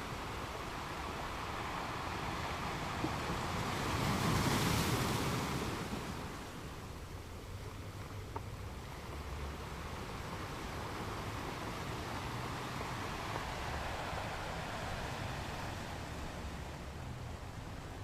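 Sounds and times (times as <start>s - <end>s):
ocean waves washing: 0.0s - 7.4s, 8.7s - 18.0s.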